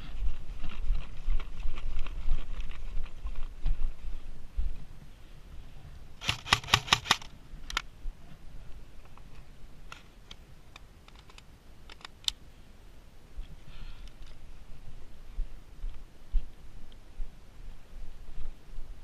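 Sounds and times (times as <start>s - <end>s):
airsoft guns firing: 6.2s - 7.3s.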